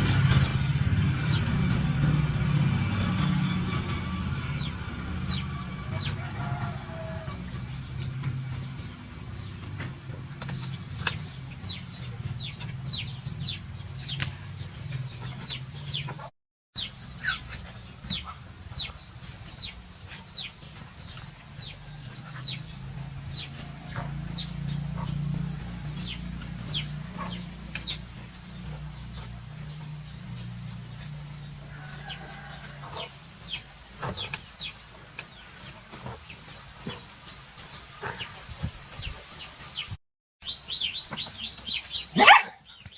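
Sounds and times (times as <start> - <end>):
steady low hum: 0.0 - 16.3, 16.9 - 39.2.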